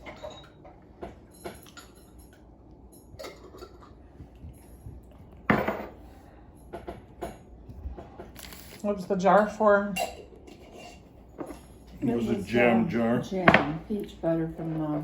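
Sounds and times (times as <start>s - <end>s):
dishes and cutlery clinking: 0.0s - 8.5s, 9.3s - 12.4s.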